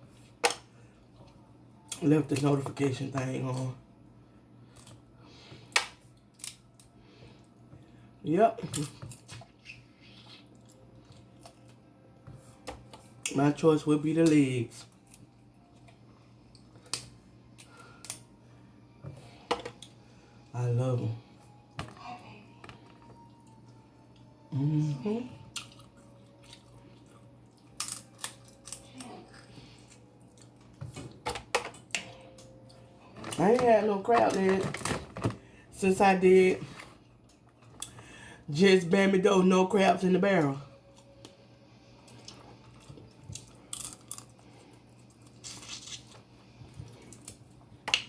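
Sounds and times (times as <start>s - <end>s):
faint steady hum: 0.0s - 48.0s
crab shells cracking: 5.8s - 7.0s, 27.6s - 29.1s, 43.1s - 44.4s
crab legs cracking: 27.6s - 29.3s, 43.1s - 46.2s.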